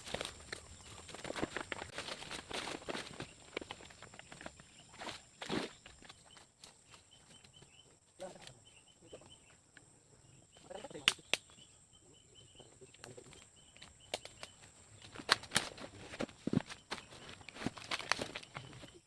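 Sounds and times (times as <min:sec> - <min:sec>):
footsteps in undergrowth: 0:00.0 - 0:07.9, 0:13.0 - 0:19.0.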